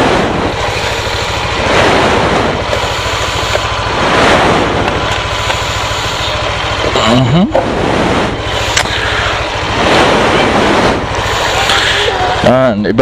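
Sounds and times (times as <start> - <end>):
steady low drone: 0.0 - 13.0.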